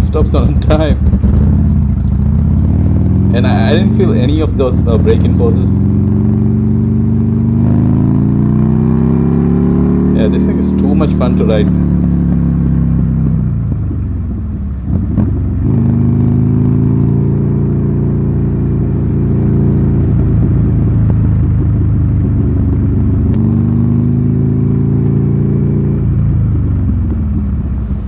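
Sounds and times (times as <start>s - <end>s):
motorcycle engine running loud: 0.0s - 28.0s.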